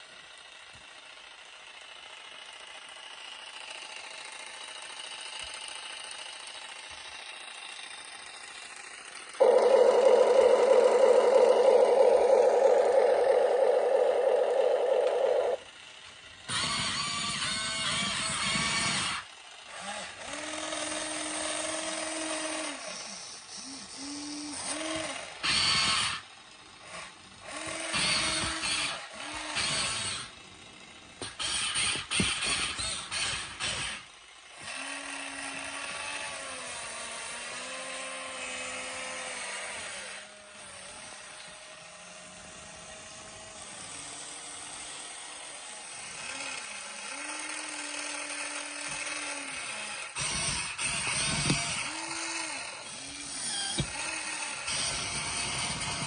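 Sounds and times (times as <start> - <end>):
mechanical hum with rattle: 0.0 - 56.0
small electric motors whining: 0.0 - 56.0.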